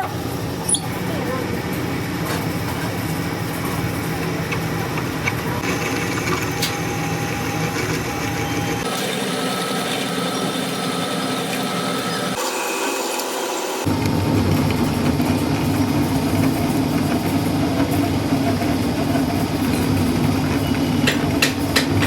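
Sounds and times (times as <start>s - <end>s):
high steady machine tone: 5.6s - 15.0s.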